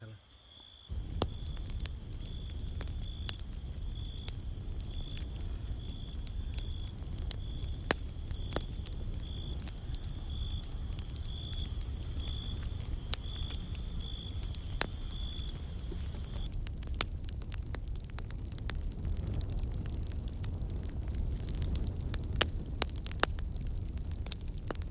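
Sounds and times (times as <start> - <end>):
wood fire crackling and popping: 0.5 - 24.9
low rumble: 0.9 - 17.0.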